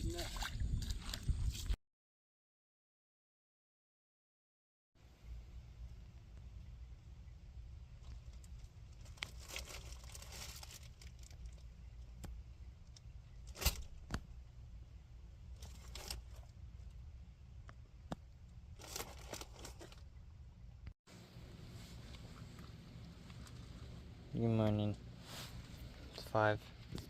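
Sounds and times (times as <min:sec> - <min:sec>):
raccoon rustling and crinkling food: 0:08.0 - 0:12.2, 0:15.6 - 0:16.5, 0:18.8 - 0:20.1, 0:21.8 - 0:24.1.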